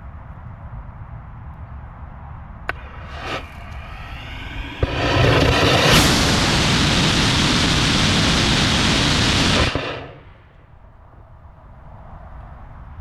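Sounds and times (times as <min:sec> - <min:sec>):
faint low rumble: 0:02.7 - 0:10.4
rocket motor hissing: 0:02.7 - 0:10.4.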